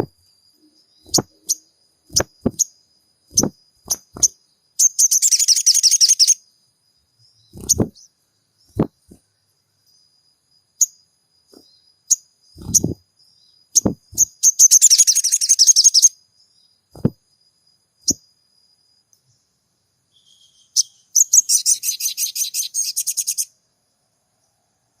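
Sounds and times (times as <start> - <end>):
bird chattering rattles: 1.0 - 2.7, 3.3 - 6.4, 7.5 - 8.1, 11.6 - 13.0, 13.8 - 16.1.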